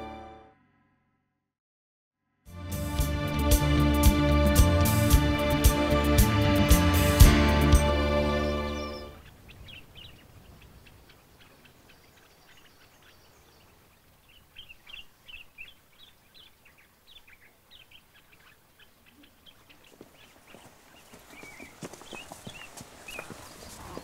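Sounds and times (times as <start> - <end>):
small birds chirping: 8.2 - 24.0.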